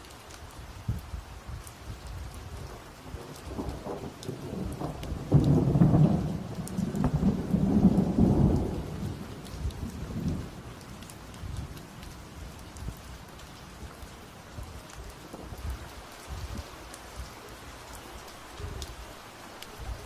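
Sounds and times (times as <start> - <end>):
steady rain: 0.0 - 20.0
thunder rumble: 1.9 - 17.5.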